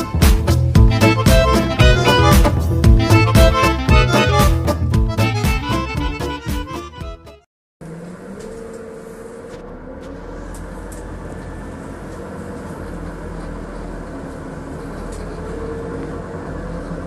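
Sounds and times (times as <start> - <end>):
bus engine hum: 0.0 - 7.2, 7.8 - 17.0
road noise: 7.8 - 17.0.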